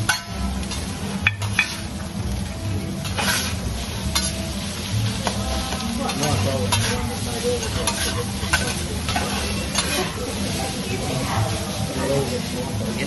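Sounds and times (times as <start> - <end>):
metal spatulas scraping: 0.0 - 1.9, 3.0 - 4.6, 6.1 - 10.8
food sizzling on a griddle: 0.0 - 13.0.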